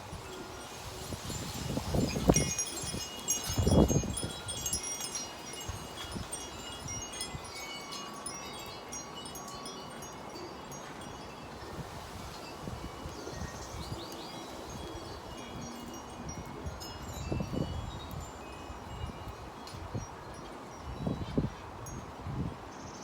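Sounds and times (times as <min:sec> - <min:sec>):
wind buffeting microphone: 0:00.0 - 0:07.8, 0:14.7 - 0:22.7
wind chimes tinkling: 0:00.0 - 0:23.0.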